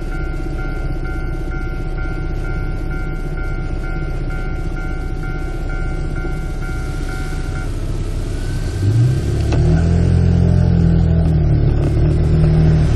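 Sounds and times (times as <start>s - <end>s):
level-crossing warning bell: 0.0s - 9.1s
vehicle engine revving: 5.6s - 12.9s.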